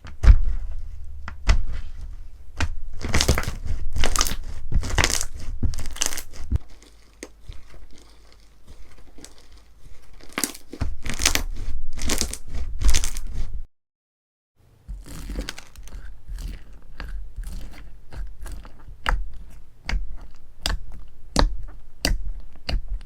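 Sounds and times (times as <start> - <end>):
slime squished by hand: 0.0 - 13.5, 14.9 - 23.0.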